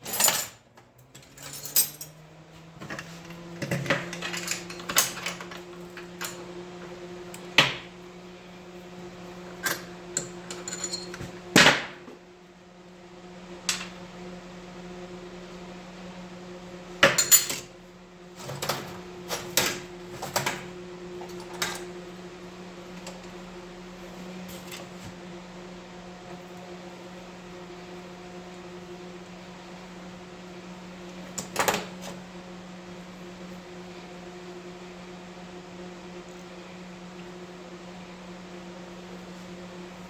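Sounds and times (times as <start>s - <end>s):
metal tools clinking: 0.0s - 2.2s, 3.7s - 5.6s, 9.6s - 11.2s.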